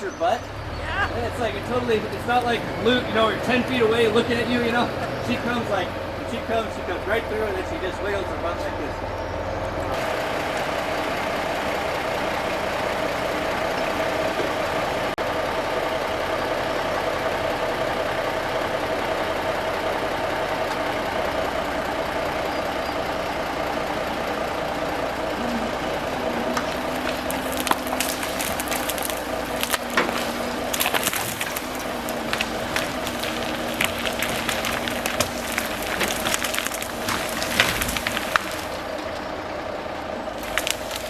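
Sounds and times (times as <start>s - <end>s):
heavy engine running: 0.0s - 41.0s
logs and brush dragged: 21.2s - 39.3s, 40.4s - 41.0s
wood snapping and splintering: 25.4s - 39.2s, 40.4s - 41.0s.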